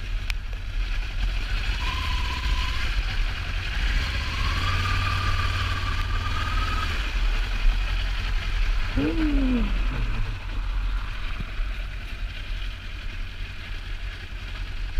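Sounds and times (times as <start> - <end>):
engine whine: 0.0 - 14.9
motorcycle engine running: 0.0 - 14.9
vocal hum: 8.8 - 11.4.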